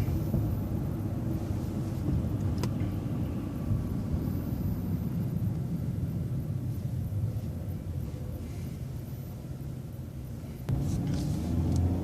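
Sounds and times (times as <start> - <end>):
bus engine rumbling: 0.0 - 12.0.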